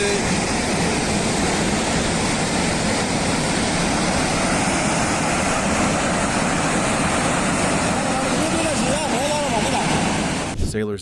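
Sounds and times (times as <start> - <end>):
roar of rushing water: 0.0 - 10.6.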